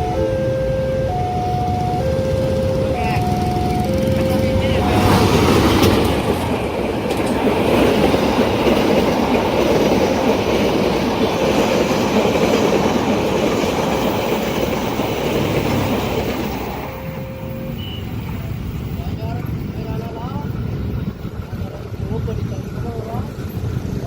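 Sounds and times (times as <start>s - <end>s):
passenger train passing at speed: 0.0s - 24.0s.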